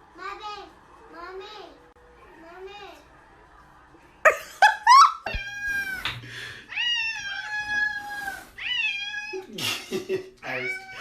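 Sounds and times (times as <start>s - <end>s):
cats meowing loudly: 5.3s - 6.0s, 6.7s - 9.8s, 10.4s - 11.0s.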